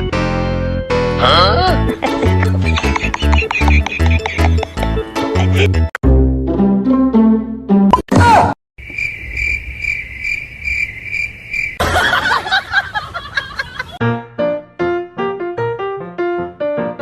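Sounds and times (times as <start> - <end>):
music: 0.0 - 7.9, 14.0 - 17.0
cricket-like chirping: 8.8 - 12.3.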